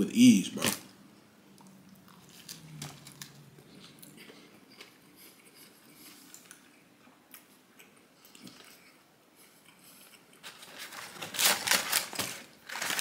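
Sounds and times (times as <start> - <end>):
person chewing food: 1.5 - 10.7.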